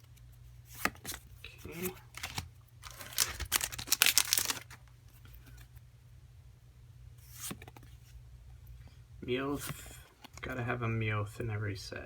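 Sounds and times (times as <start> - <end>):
foil wrapper crinkling and tearing: 2.1 - 4.8.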